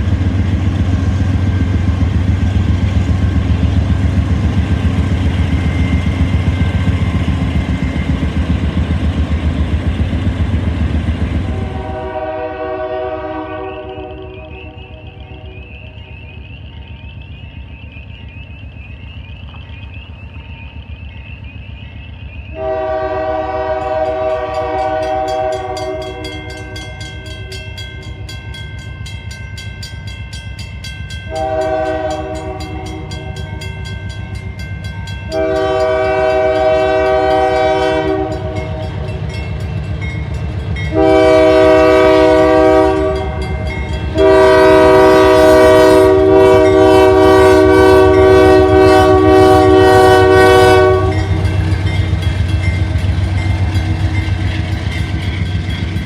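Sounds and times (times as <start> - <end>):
train rumbling: 0.0 - 56.0
locomotive air horn chord: 11.4 - 15.6, 22.5 - 27.6, 31.3 - 33.4, 35.3 - 39.1, 40.9 - 51.6.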